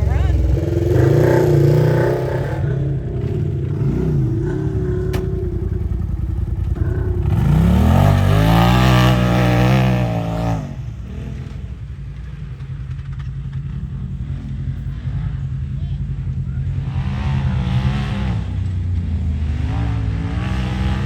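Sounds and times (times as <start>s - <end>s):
engine revving hard: 0.0s - 11.8s, 16.7s - 21.0s
low engine rumble: 0.0s - 21.0s.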